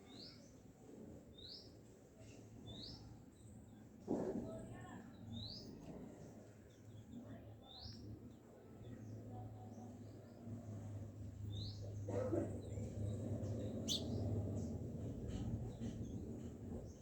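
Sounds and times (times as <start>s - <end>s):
small bird chirping: 13.5s - 14.7s.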